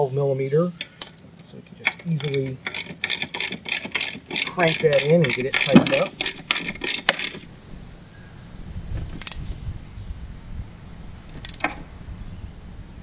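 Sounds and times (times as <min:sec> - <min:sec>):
socket ratchet clicking: 0:01.8 - 0:07.4, 0:09.2 - 0:09.5, 0:11.4 - 0:11.8.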